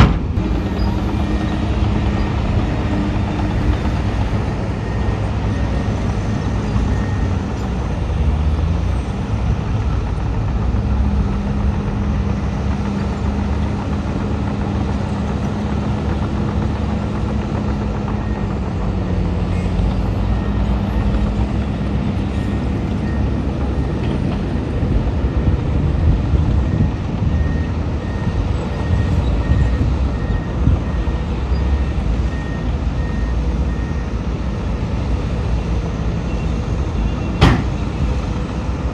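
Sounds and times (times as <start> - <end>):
heavy diesel machinery running: 0.0 - 38.9
reversing alarm beeping: 0.4 - 7.6, 26.6 - 34.3.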